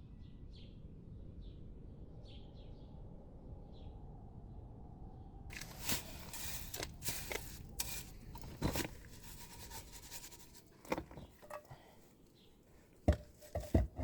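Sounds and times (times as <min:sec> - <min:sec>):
scraping and rustling: 0:05.5 - 0:12.0, 0:12.7 - 0:14.0.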